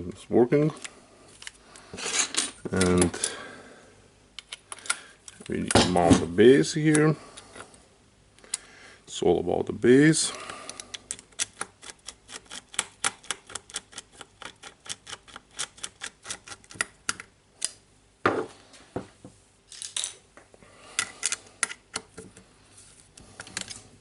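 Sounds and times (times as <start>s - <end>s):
knock of parts: 18.2s - 19.1s.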